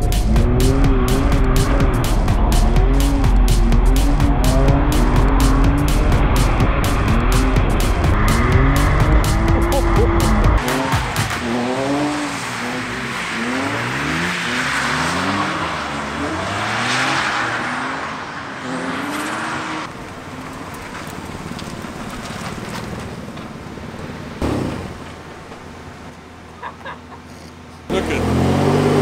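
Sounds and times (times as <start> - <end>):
car engine revving: 0.0 - 25.9, 27.5 - 29.0.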